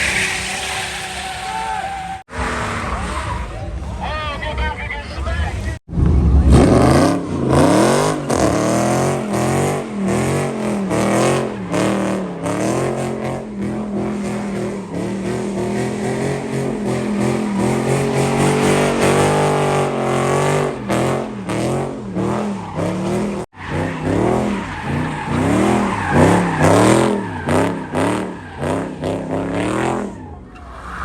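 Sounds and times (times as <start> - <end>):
car engine revving hard: 6.4 - 30.2.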